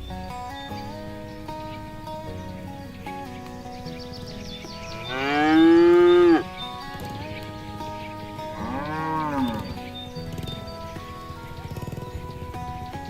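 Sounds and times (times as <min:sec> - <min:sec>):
soft background music: 0:00.0 - 0:13.0
cow mooing: 0:04.9 - 0:07.2, 0:08.1 - 0:10.7.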